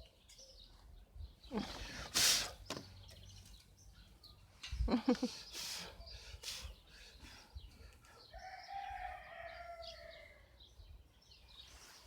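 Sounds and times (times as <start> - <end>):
small birds chirping: 0.0 - 12.0
rooster crowing: 8.3 - 10.6.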